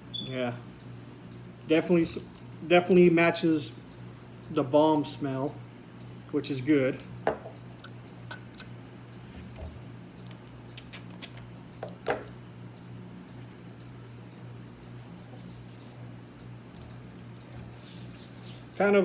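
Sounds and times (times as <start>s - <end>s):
oil rubbed between fingers: 14.9s - 16.0s, 17.5s - 19.0s.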